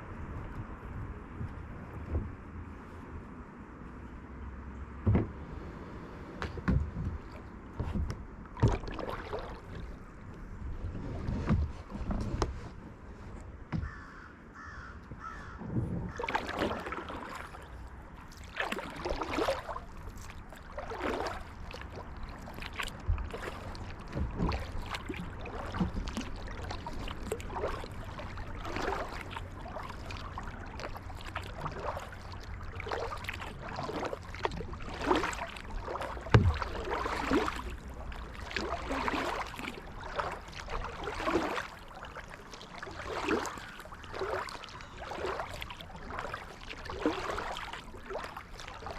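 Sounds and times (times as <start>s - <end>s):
water rumbling against hull: 0.0s - 48.9s
paddle splashing in water: 5.0s - 48.9s.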